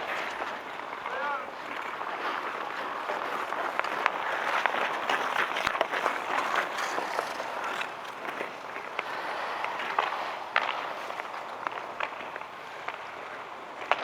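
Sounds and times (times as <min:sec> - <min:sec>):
hockey sticks and puck clacking: 0:00.0 - 0:14.0
skates scraping on ice: 0:00.0 - 0:14.0.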